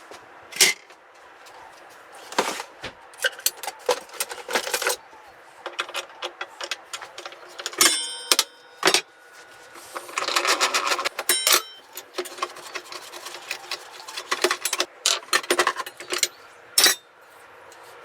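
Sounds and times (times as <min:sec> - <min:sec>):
metal clinks and rattles: 0:03.2 - 0:17.1
steel blade ringing: 0:07.7 - 0:09.0, 0:11.2 - 0:12.2, 0:16.0 - 0:17.1.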